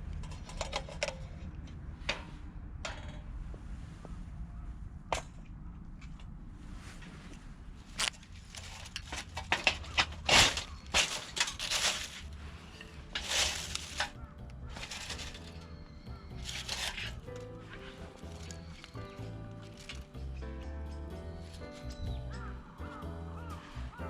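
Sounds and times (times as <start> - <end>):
low steady rumble: 0.0 - 23.9
wood cracking and snapping: 8.0 - 20.4.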